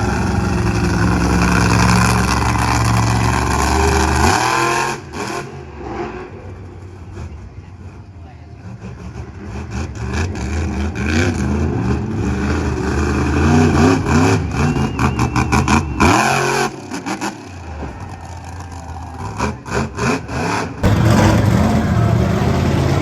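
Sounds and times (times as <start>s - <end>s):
monster truck engine revving: 0.0s - 23.0s
loud rushing burst: 20.8s - 23.0s.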